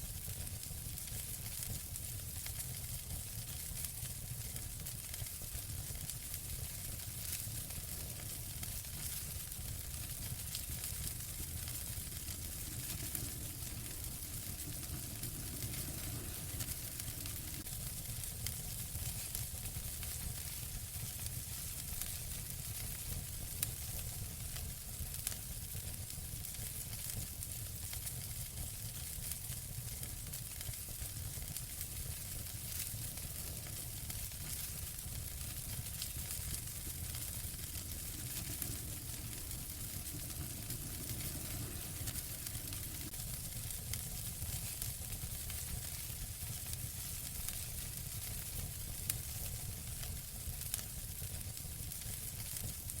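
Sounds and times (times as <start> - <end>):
fireplace fire crackling: 0.0 - 53.0
fire popping: 0.1 - 53.0
low rumble: 11.2 - 17.7, 35.8 - 43.2.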